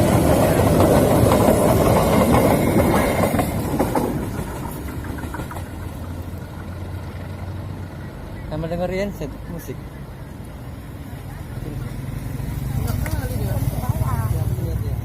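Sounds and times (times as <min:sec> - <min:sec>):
train wheels clattering on rails: 0:00.0 - 0:06.9.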